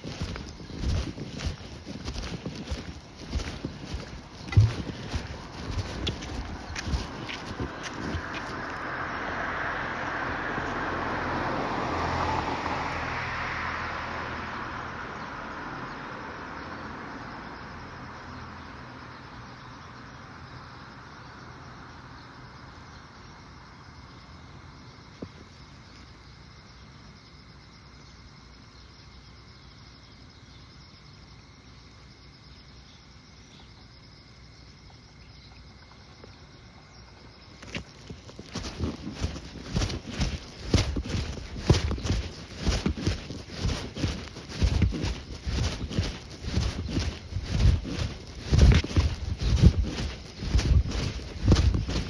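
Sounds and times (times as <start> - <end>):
footsteps walking: 0.0 - 8.9, 37.6 - 52.0
night insects chirring: 0.0 - 52.0.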